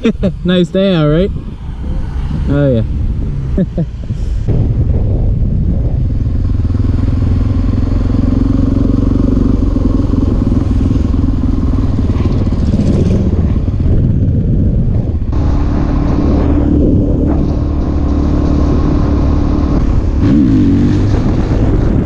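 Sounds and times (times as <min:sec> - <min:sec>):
wind rushing over microphone: 0:00.0 - 0:22.0
motorcycle engine running: 0:04.5 - 0:22.0.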